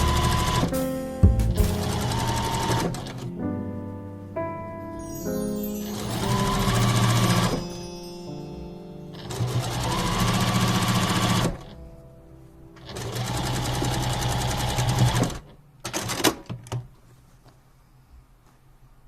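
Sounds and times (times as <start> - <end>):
electric sewing machine stitching: 0.0 - 0.7, 1.8 - 3.2, 6.0 - 7.6, 9.2 - 11.6, 12.9 - 16.4.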